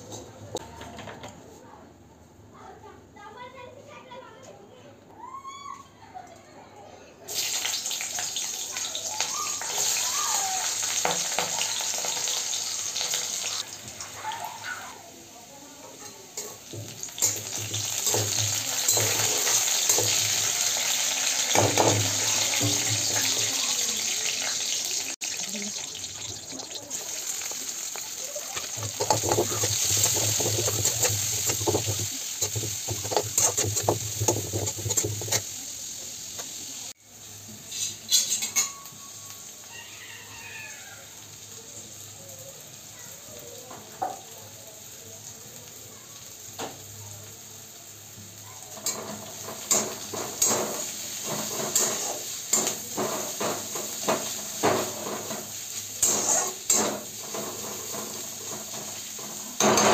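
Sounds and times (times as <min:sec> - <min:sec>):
onions and garlic sizzling in oil: 0:07.3 - 0:59.9
stirring strokes scraping the pan: 0:26.9 - 0:35.7, 0:48.7 - 0:59.9.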